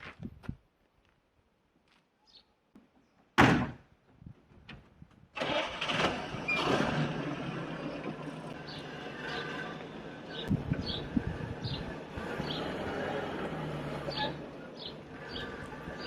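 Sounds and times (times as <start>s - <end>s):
engine cranking and idling: 5.4s - 16.0s.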